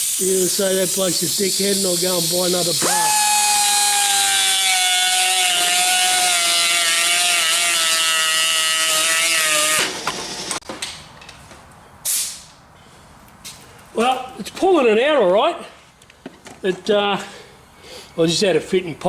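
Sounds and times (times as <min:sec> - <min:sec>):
die grinder grinding steel: 0:02.7 - 0:10.6
short burst of hiss: 0:12.0 - 0:12.5.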